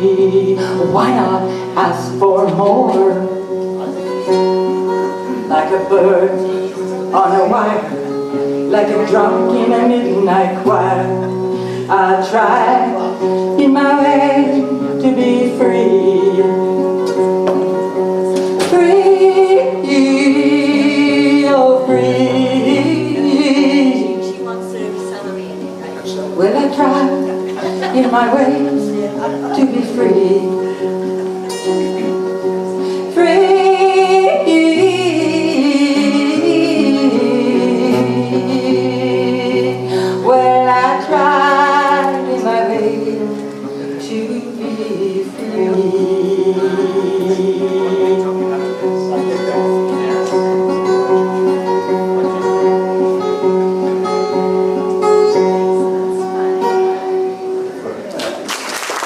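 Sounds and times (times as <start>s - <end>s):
woman singing long notes: 0.0s - 17.5s, 18.1s - 24.4s, 26.4s - 48.8s
guitar chords: 0.0s - 59.0s.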